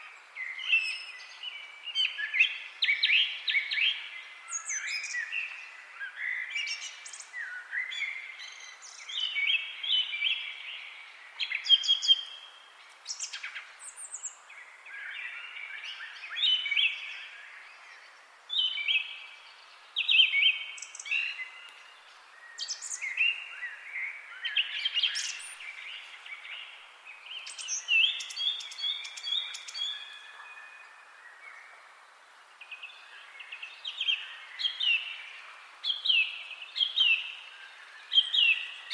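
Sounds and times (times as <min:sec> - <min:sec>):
faint background hiss: 0:00.0 - 0:38.9
songbirds chirping and singing: 0:00.0 - 0:38.9.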